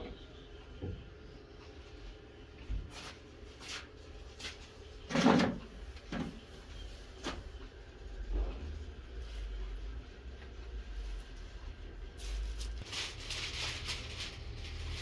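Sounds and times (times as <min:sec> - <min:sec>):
objects knocking and clunking: 0:05.1 - 0:06.5.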